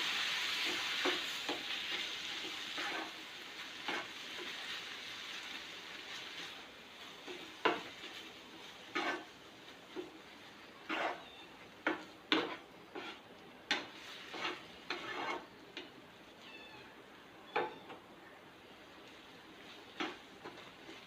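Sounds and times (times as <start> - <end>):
spoon scraping in a pan: 0.1 - 3.2, 3.8 - 4.9, 7.2 - 15.9, 19.6 - 21.0.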